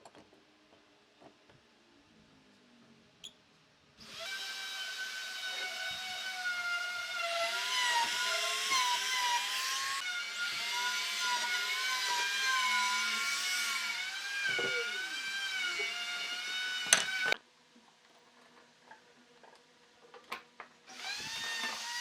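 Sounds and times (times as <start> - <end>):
power tool motor whining: 20.9 - 22.0.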